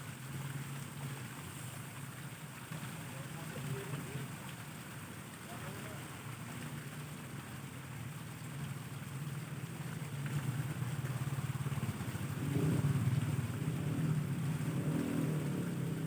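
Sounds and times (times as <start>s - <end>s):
engine running: 8.8s - 16.0s.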